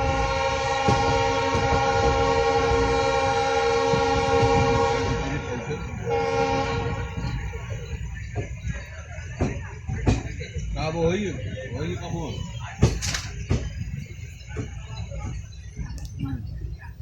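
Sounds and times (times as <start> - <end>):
train horn blasts: 0.0 - 7.6
train coach rumbling on track: 0.0 - 17.0.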